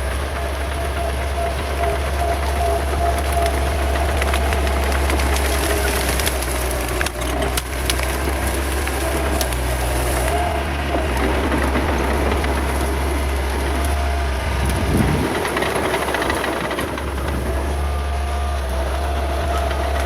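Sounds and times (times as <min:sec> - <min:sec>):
brush cracking and clanking: 0:00.0 - 0:20.0
bulldozer diesel engine: 0:00.0 - 0:20.0.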